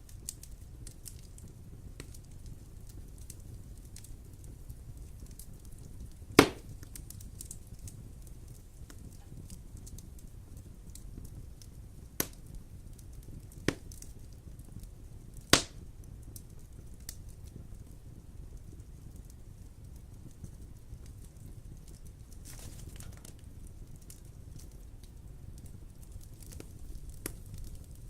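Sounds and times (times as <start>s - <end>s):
wood fire burning: 0.0s - 28.0s
loud sharp fire pops: 5.2s - 12.6s, 13.2s - 14.8s, 15.4s - 17.2s, 25.6s - 28.0s.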